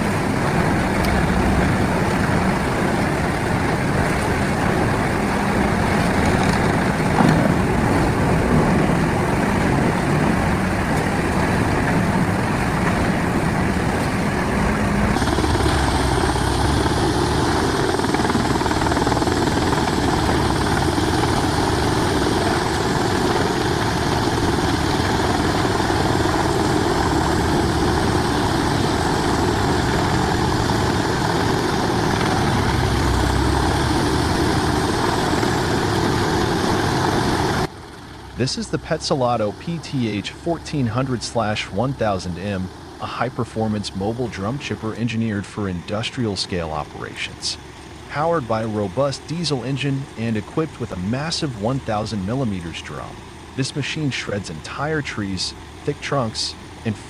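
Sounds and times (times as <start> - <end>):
diesel wood chipper running: 14.7 - 38.9.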